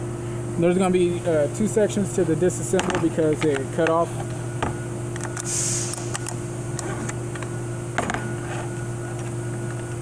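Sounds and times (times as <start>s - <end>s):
steady background hum: 0.0s - 10.0s
short hiss: 5.5s - 6.0s.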